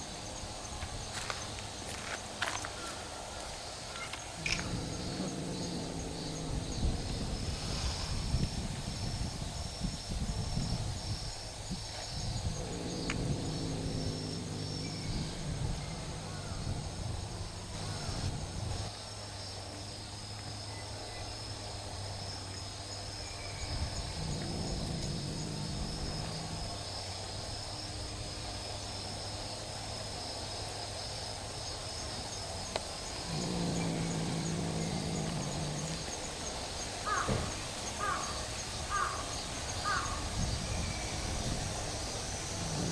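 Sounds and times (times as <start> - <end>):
cats growling: 0.0 - 9.6, 11.6 - 18.9, 23.3 - 29.0, 31.5 - 42.9
insects chirring: 0.0 - 42.9.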